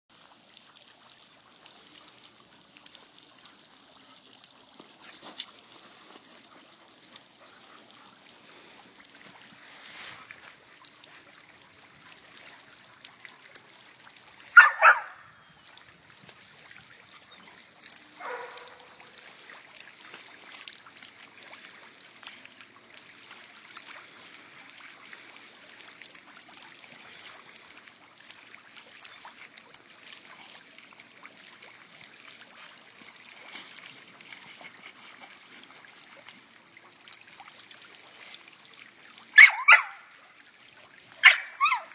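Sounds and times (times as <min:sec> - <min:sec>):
fountain water trickling: 0:00.1 - 0:41.9
dog barking: 0:14.6 - 0:15.3, 0:18.2 - 0:19.1, 0:39.4 - 0:40.1, 0:41.2 - 0:41.9.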